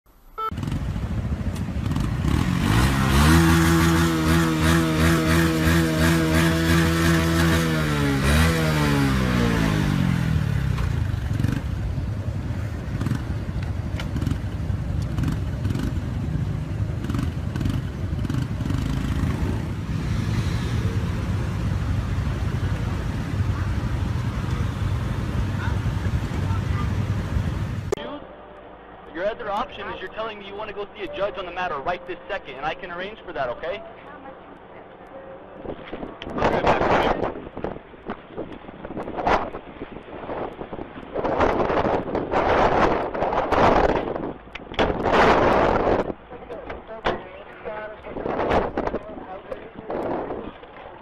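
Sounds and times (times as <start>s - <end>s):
rushing road noise: 0.1s - 51.0s
vehicle engine running: 0.5s - 28.0s.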